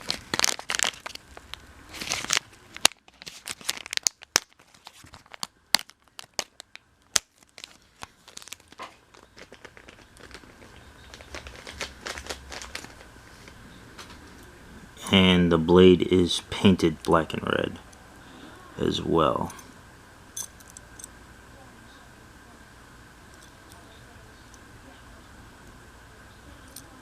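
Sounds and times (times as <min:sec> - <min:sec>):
plastic packaging crinkling: 0:00.0 - 0:14.3.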